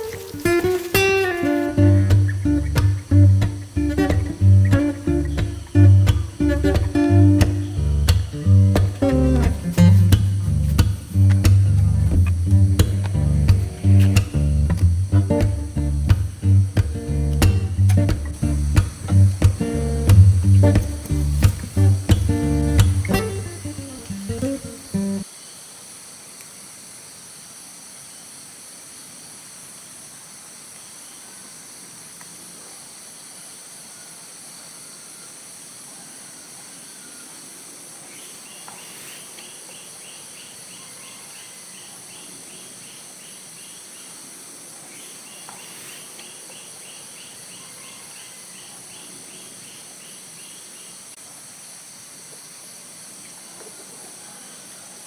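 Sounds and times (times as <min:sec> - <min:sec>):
insects shrilling: 0:00.0 - 0:25.2
rapidly pulsed chirping call: 0:00.0 - 0:25.2.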